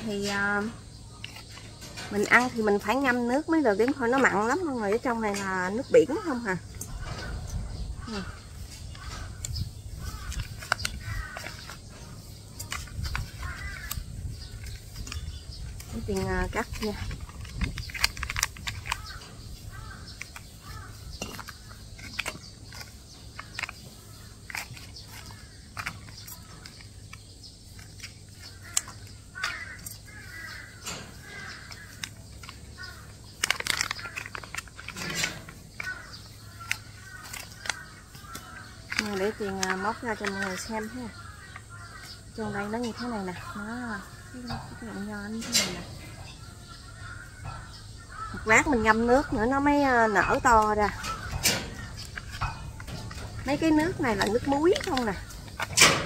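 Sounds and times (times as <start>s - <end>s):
birds calling: 0.0s - 56.0s
rustling of handling: 0.0s - 56.0s
sharp clicks: 0.0s - 56.0s
crow-like caws: 6.1s - 11.8s, 13.2s - 14.5s, 18.8s - 21.8s, 28.4s - 32.1s, 32.7s - 34.5s, 35.8s - 42.4s, 46.1s - 53.5s.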